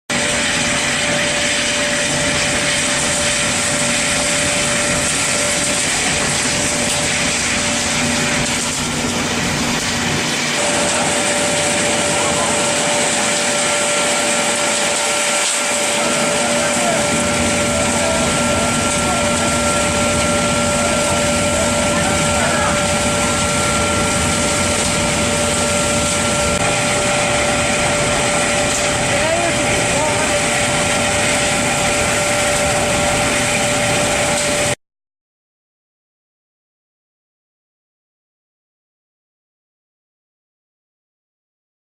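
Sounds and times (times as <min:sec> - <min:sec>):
burner blower roaring: 0:00.1 - 0:34.8
constant whine: 0:00.1 - 0:34.8.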